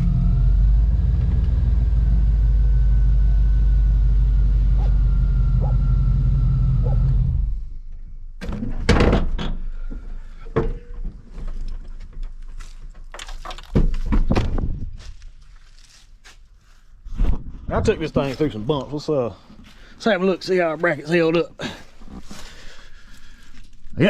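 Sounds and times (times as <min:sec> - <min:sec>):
pickup truck engine rumbling: 0:00.0 - 0:07.9
sharp knocks and thuds: 0:08.4 - 0:09.6, 0:10.6 - 0:15.2.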